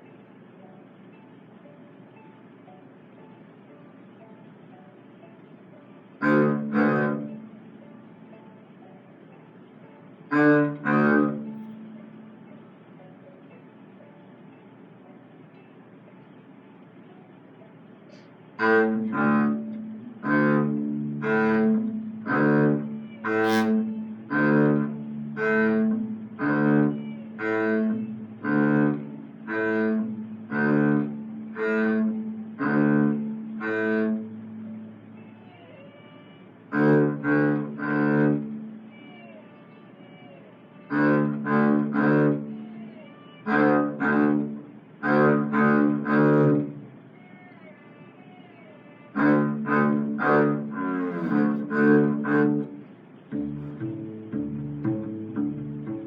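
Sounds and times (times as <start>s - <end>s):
double bass playing a tune: 6.2s - 7.5s, 10.3s - 11.9s, 18.6s - 35.1s, 36.7s - 38.8s, 40.9s - 42.6s, 43.4s - 46.8s, 49.1s - 56.0s.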